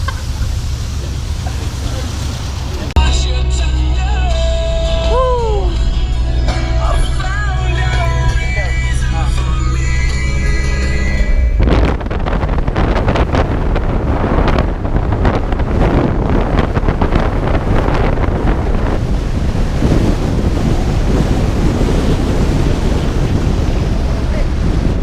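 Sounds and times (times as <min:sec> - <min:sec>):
low rumble: 0:00.0 - 0:25.0
wind buffeting microphone: 0:05.0 - 0:25.0.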